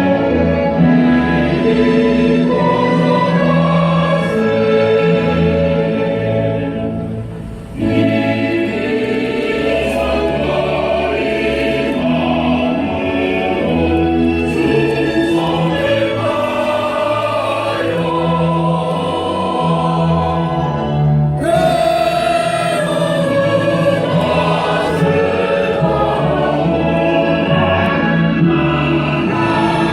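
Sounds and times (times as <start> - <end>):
choir singing with accompaniment: 0.0 - 29.9.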